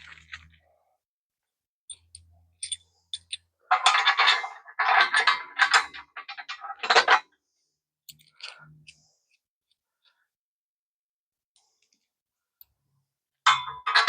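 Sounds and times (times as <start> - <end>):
metallic clattering and scraping: 1.9 - 7.2, 13.5 - 14.0.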